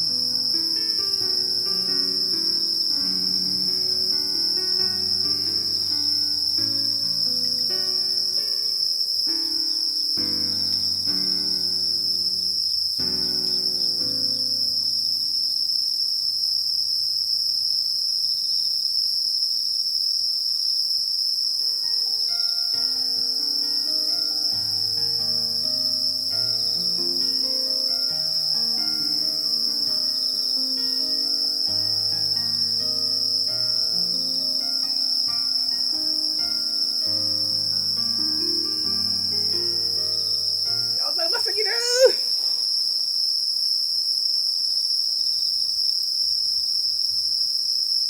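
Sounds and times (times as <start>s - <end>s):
soft melodic music: 0.0s - 15.6s, 21.8s - 42.0s
crickets chirring: 0.0s - 48.0s.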